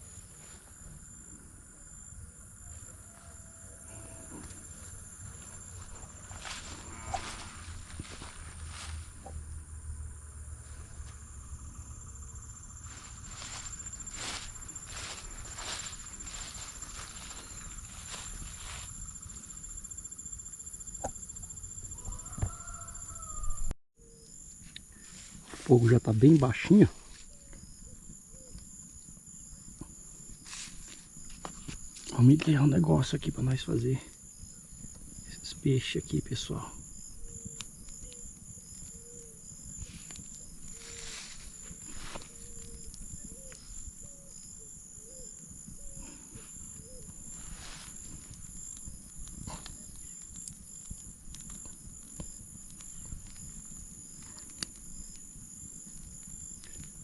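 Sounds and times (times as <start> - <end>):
insects trilling: 0.0 - 57.0
rustles of handling: 39.7 - 43.8, 46.1 - 48.7.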